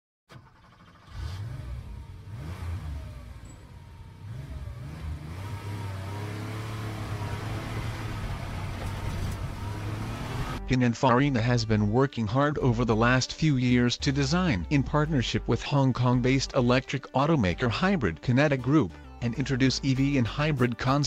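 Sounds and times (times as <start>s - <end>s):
car engine revving: 0.4s - 10.6s.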